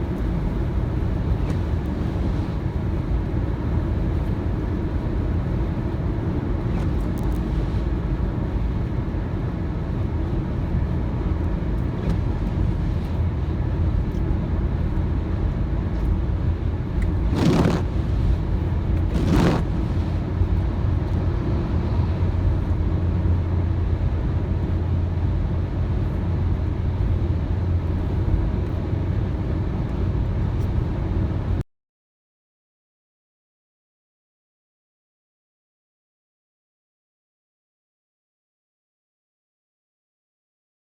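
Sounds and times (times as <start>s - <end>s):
car driving on wet road: 0.0s - 25.0s
brief swishes: 17.3s - 17.9s, 19.1s - 20.1s.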